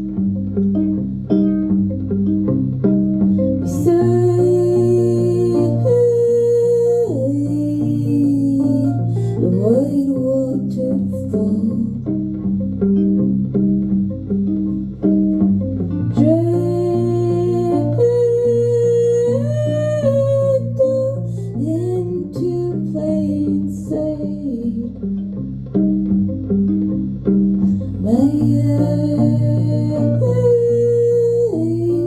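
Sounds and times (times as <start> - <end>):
guitar picking a pattern: 0.0 - 32.0
woman singing long notes: 3.6 - 12.3, 16.1 - 25.1, 27.8 - 32.0.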